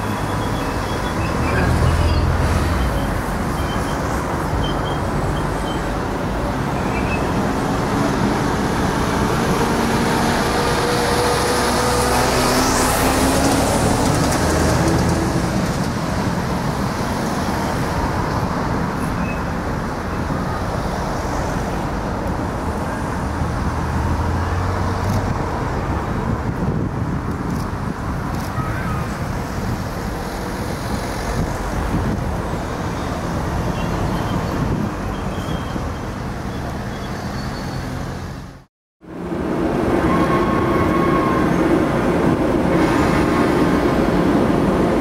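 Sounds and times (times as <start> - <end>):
freight train rumbling on rails: 0.0 - 37.4, 39.0 - 45.0.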